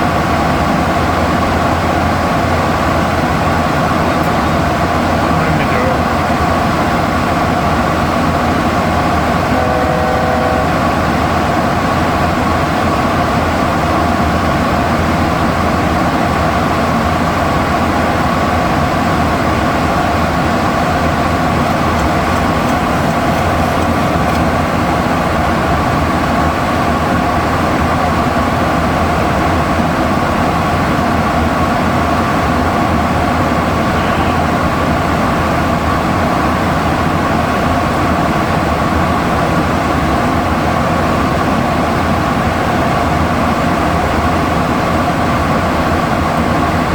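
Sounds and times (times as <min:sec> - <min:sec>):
cockpit airflow and engine hum: 0:00.0 - 0:46.9
short tone: 0:09.5 - 0:11.0.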